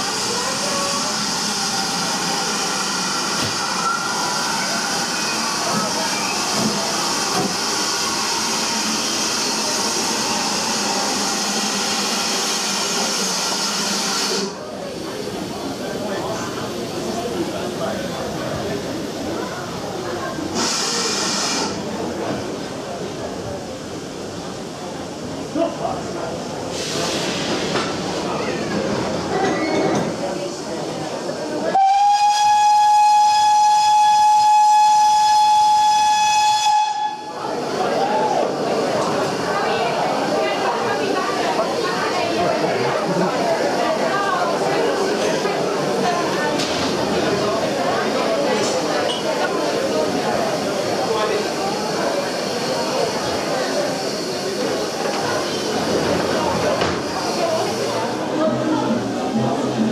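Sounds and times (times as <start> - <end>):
steam locomotive hissing: 0.0 - 59.9
steam locomotive whistle blast: 31.7 - 37.4.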